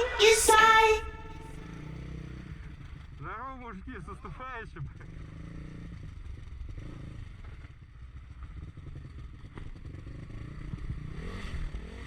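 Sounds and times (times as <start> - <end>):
motorcycle engine at low revs: 4.8 - 12.0.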